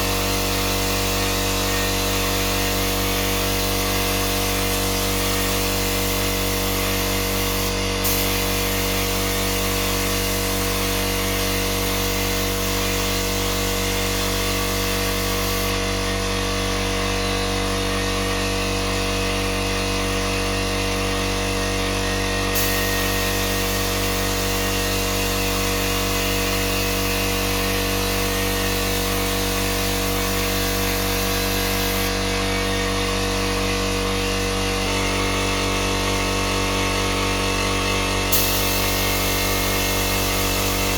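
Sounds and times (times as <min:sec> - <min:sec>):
power tool humming: 0:00.0 - 0:19.6, 0:20.4 - 0:40.9.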